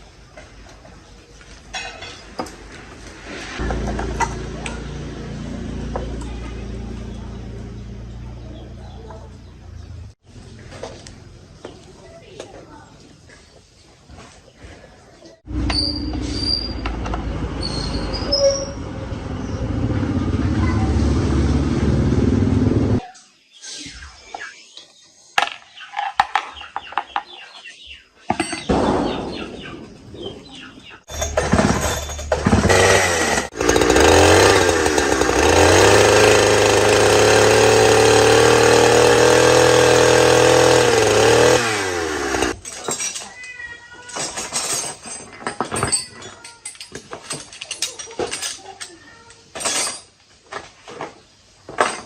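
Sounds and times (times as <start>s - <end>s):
chainsaw engine revving: 19.1s - 23.0s, 31.1s - 42.6s.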